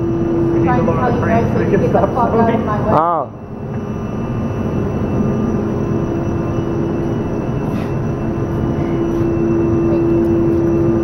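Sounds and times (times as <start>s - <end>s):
machinery engine running: 0.0s - 11.0s
steady hum tone: 0.0s - 11.0s.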